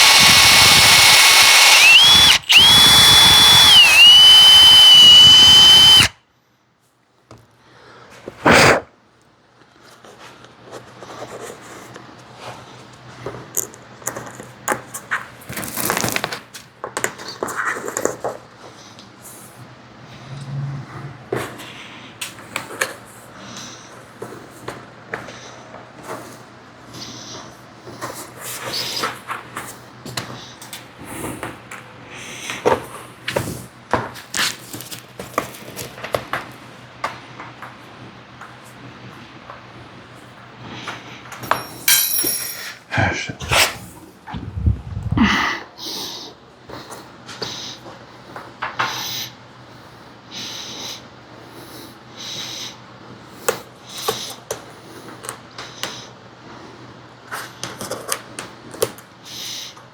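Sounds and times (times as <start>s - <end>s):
steady low hum: 20.0s - 21.7s.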